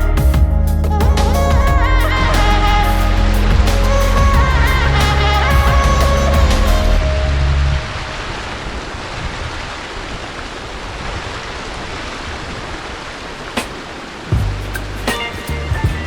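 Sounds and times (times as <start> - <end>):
background music: 0.0 - 8.4, 14.4 - 16.0.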